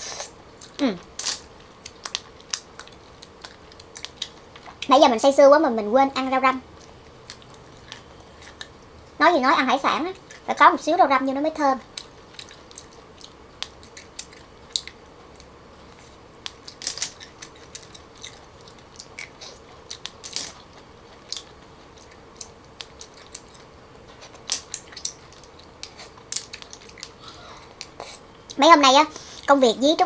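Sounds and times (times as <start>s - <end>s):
chewing and mouth smacks: 1.8s - 4.9s, 11.8s - 27.2s.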